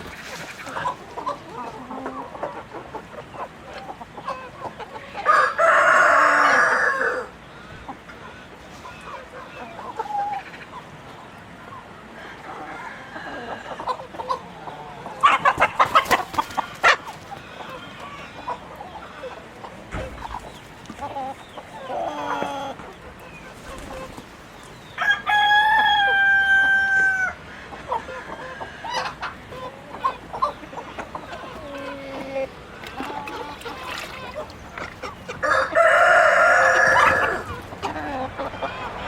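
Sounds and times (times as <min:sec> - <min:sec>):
chickens clucking: 0:00.0 - 0:39.0
rooster crowing: 0:05.2 - 0:07.3, 0:25.0 - 0:27.4, 0:35.4 - 0:37.6.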